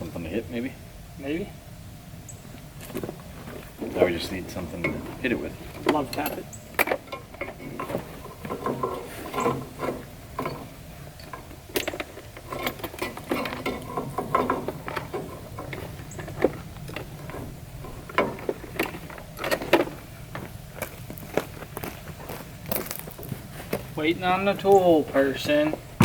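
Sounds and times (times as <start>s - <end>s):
metallic clinks and rattles: 5.7s - 19.9s.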